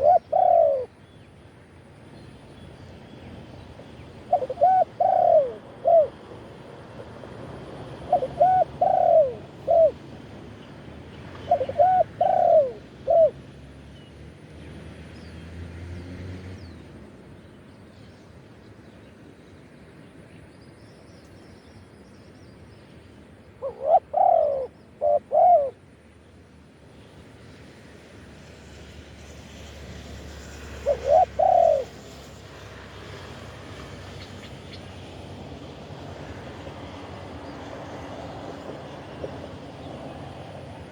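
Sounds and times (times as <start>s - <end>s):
dove cooing: 0.0s - 1.0s, 4.2s - 7.1s, 7.7s - 10.1s, 11.3s - 13.4s, 23.6s - 25.8s, 30.7s - 32.0s.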